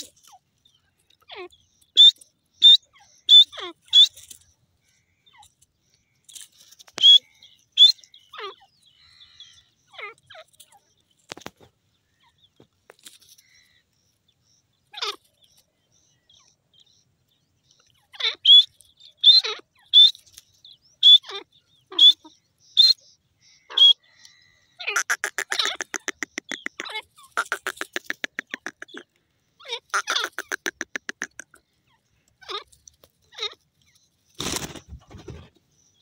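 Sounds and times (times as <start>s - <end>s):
francolin calling: 0.0s - 11.1s, 17.7s - 34.1s.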